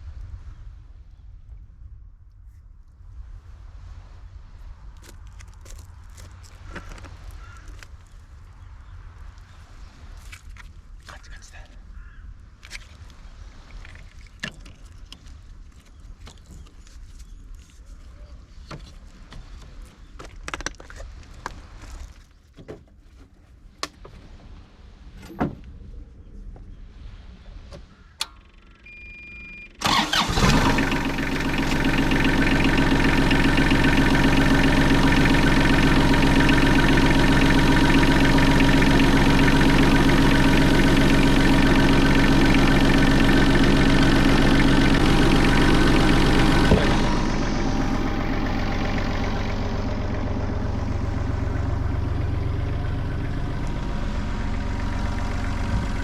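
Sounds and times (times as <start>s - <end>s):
short beep: 28.8s - 29.8s
engine starting and idling: 29.5s - 56.0s.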